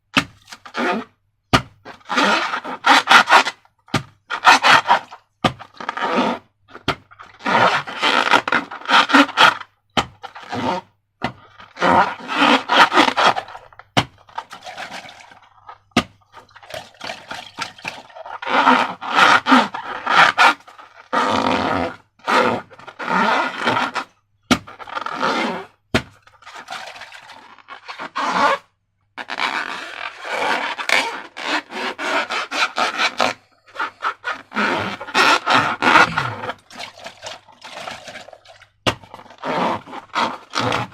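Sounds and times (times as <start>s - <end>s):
slime squelching: 33.8s - 40.9s.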